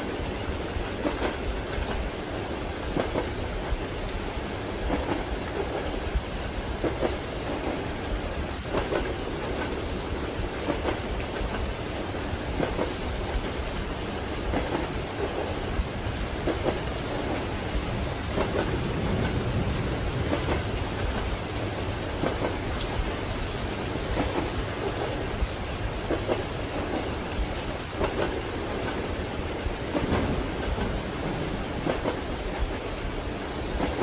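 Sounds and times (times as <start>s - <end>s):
steady rain: 0.0s - 34.0s
deep continuous rumble: 13.2s - 34.0s.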